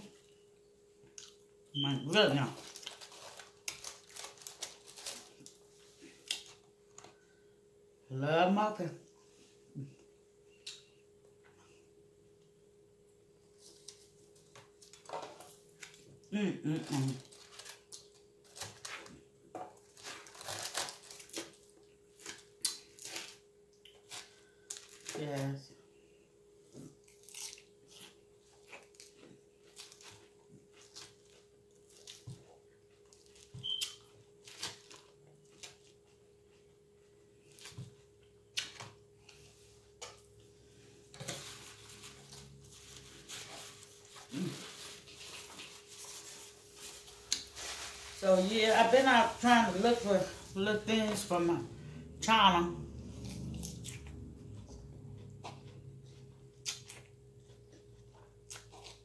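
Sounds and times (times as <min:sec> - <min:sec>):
crunchy salad chewing: 0:26.7 - 0:36.5, 0:52.9 - 0:59.0
person humming: 0:44.3 - 0:44.7.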